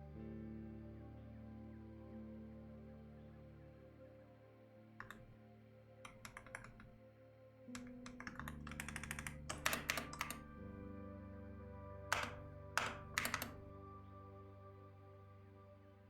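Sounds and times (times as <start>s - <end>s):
soft background music: 0.0s - 16.0s
typing on computer keyboard: 5.0s - 5.4s, 6.1s - 7.0s, 7.8s - 10.8s, 12.1s - 13.7s.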